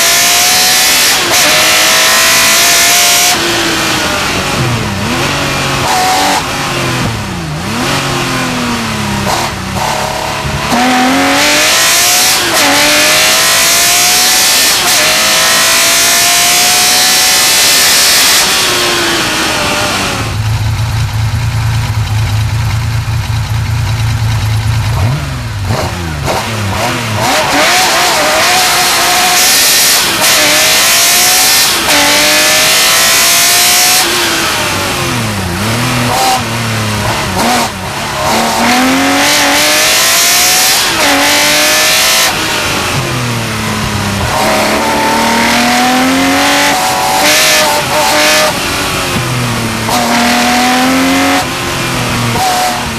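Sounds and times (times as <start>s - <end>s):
race car engine revving: 0.0s - 52.9s.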